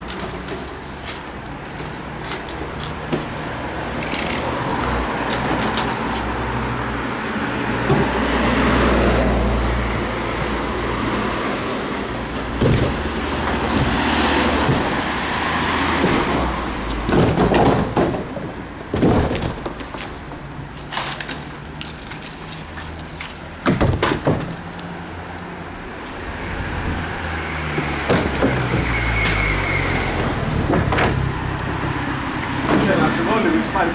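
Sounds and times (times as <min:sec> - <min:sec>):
street traffic noise: 0:00.0 - 0:33.9
sharp knocks and thuds: 0:12.3 - 0:20.5, 0:23.6 - 0:24.7, 0:26.8 - 0:29.6, 0:30.2 - 0:33.1.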